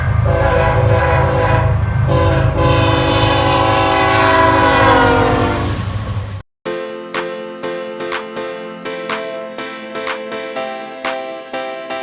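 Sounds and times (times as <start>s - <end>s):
locomotive air horn: 0.0s - 5.9s
deep rumble of train: 0.0s - 6.4s.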